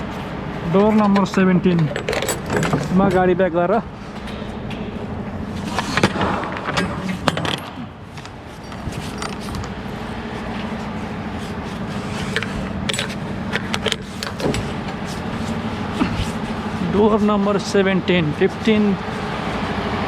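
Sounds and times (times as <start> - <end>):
diesel truck engine running: 0.0 - 20.0
jangling rattles: 0.8 - 9.9, 12.4 - 16.0.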